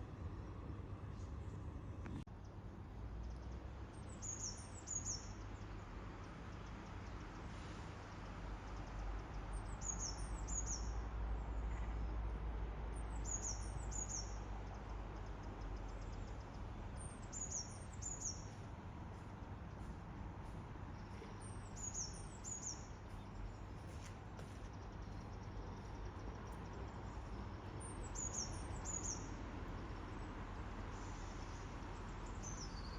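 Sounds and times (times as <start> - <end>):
small bird chirping: 25.0 - 29.4.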